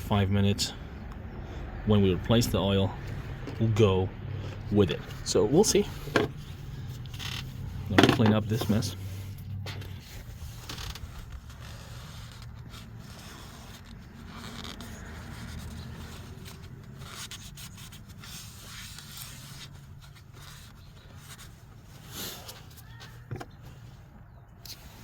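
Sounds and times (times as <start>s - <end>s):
rubbing and scraping: 4.4s - 24.1s.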